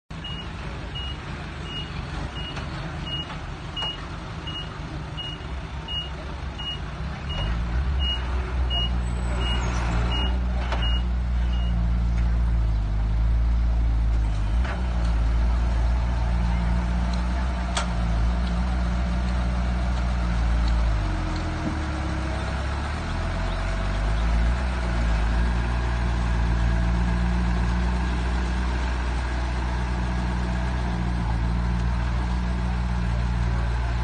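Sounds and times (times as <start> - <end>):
reversing alarm beeping: 0.2 - 11.8.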